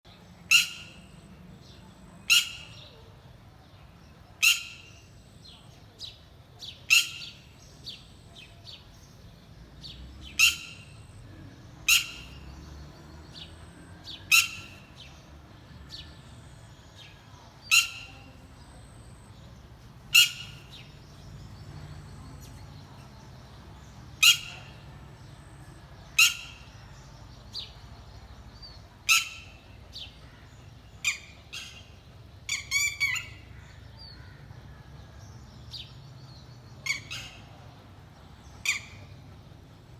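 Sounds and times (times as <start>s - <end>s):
bird giving sharp calls: 0.5s - 1.4s, 2.2s - 3.0s, 4.4s - 5.5s, 6.6s - 8.5s, 10.2s - 15.2s, 15.9s - 22.5s, 24.2s - 25.4s, 26.1s - 26.8s.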